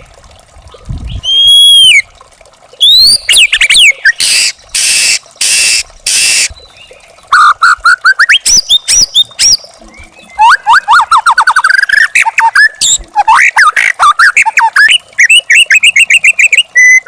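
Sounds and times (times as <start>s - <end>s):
bird singing: 8.1s - 13.0s.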